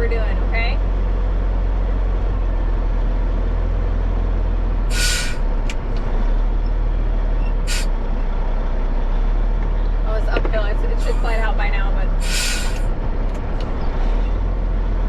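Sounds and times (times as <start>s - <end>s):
diesel truck engine running: 0.0s - 15.0s
air hissing: 4.9s - 5.8s, 7.6s - 8.0s, 12.2s - 13.0s.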